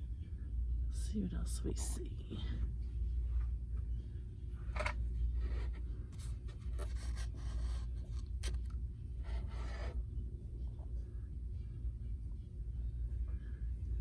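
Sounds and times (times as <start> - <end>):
camera handling rubbing and scraping: 4.7 - 10.0.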